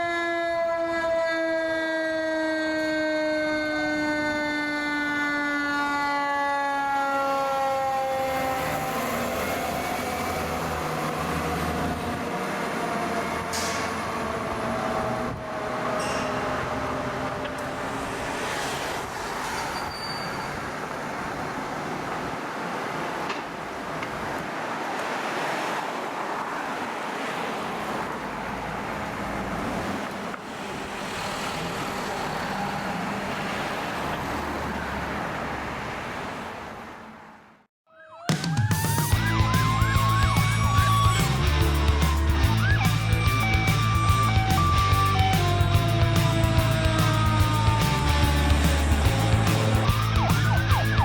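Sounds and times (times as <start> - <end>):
mechanical siren winding down: 0.0 - 12.3, 38.0 - 51.0
fire engine driving past: 0.0 - 37.4, 39.1 - 51.0.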